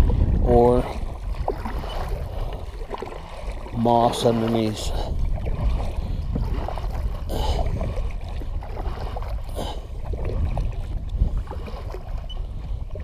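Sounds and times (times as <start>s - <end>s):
water sloshing around kayak: 0.0s - 13.0s
water splashes: 0.0s - 13.0s
wind on microphone: 0.0s - 13.0s.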